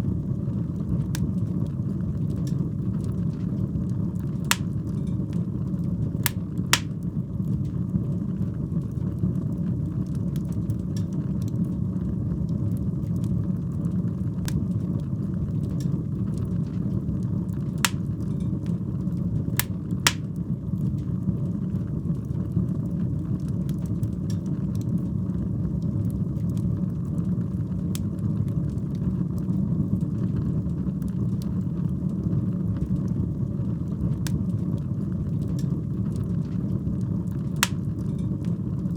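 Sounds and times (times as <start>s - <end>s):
fire rumbling and crackling: 0.0s - 38.9s
loud pops from fire: 4.5s - 4.9s, 6.3s - 7.1s, 17.9s - 18.2s, 19.6s - 20.4s, 37.6s - 38.2s.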